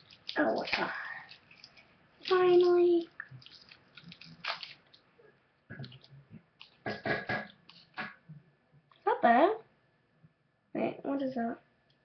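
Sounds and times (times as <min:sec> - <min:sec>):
soft chewing sounds: 0:00.0 - 0:09.0.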